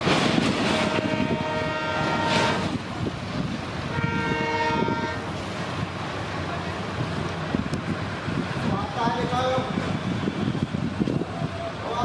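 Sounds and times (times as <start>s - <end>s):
train rumbling: 0.0s - 12.0s
locomotive horn blasts: 0.7s - 2.7s, 3.9s - 5.2s.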